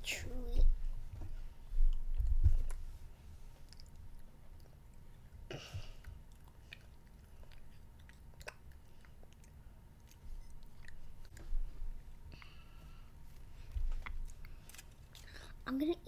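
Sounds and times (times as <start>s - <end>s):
child chewing candy: 1.6s - 15.6s
wet mouth clicks: 6.1s - 11.5s.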